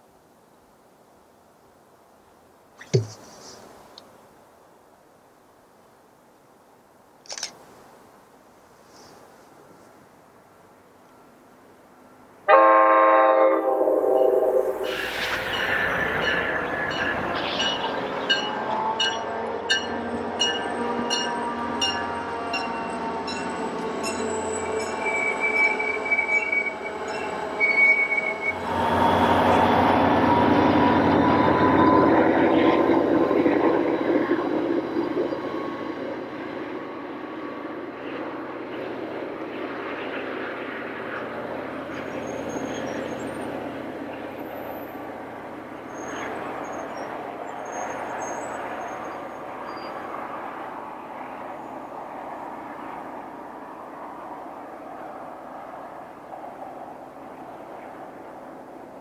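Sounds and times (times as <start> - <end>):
train rumble: 12.5 - 59.0
train wheels squealing: 14.2 - 32.9, 41.9 - 43.6, 45.8 - 50.4.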